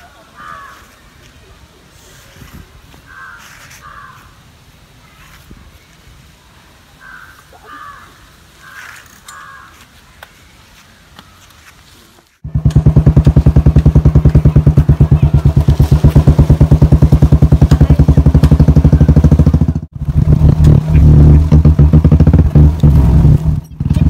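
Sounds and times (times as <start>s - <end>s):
motorcycle engine running: 12.4s - 24.0s.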